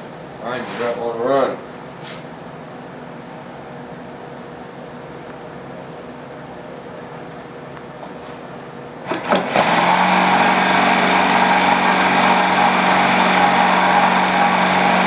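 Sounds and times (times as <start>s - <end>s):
model aircraft engine running: 9.1s - 15.0s.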